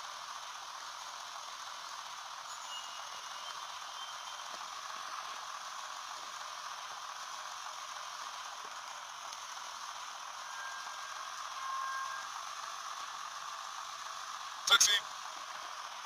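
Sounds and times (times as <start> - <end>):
faint brief tone: 2.5 - 4.6, 10.4 - 12.3.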